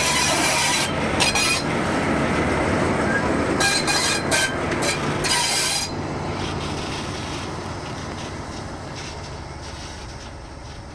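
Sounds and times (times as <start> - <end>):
locomotive high-pitched squealing hiss: 0.0 - 1.7, 3.0 - 7.5, 8.2 - 10.9
locomotive low rumble: 0.0 - 10.9.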